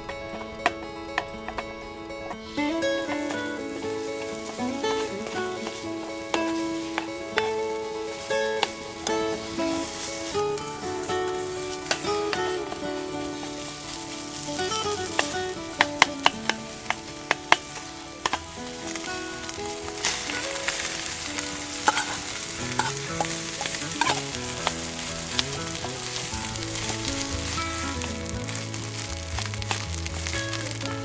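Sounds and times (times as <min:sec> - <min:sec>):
food sizzling in a pan: 0:02.3 - 0:31.0
utensil striking a pan: 0:14.8 - 0:25.5.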